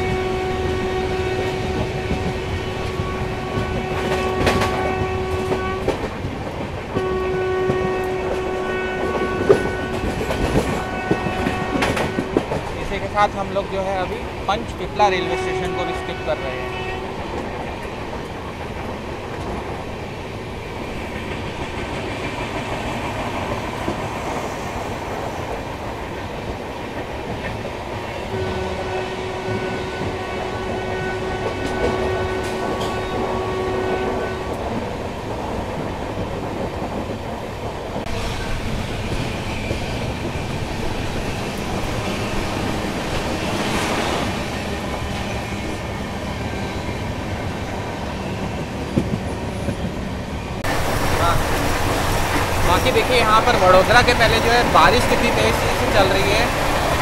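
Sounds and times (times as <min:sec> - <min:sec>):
train horn blast: 0:00.0 - 0:06.1, 0:06.9 - 0:12.6, 0:15.0 - 0:17.2, 0:28.3 - 0:34.8
train rumbling: 0:00.0 - 0:57.0.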